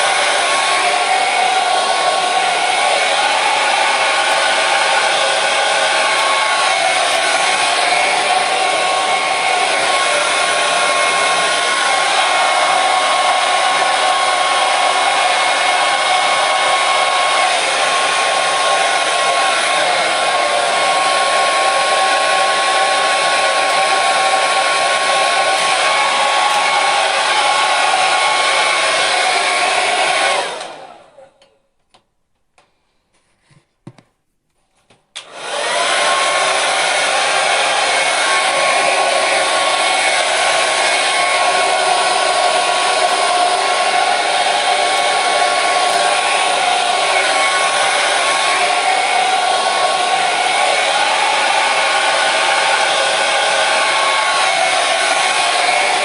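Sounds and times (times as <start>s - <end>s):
hair dryer running: 0.0s - 31.3s, 35.2s - 56.0s.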